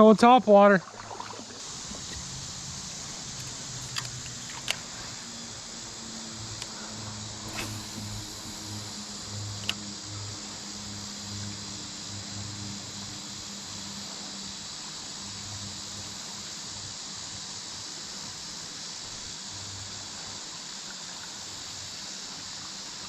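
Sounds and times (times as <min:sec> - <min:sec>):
high-pitched insect chorus: 0:00.0 - 0:23.0
low pulsing hum: 0:01.2 - 0:11.1.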